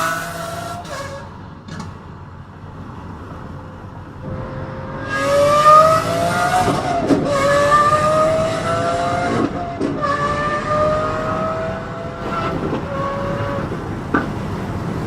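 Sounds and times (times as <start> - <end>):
sports car engine accelerating: 2.6 - 15.0.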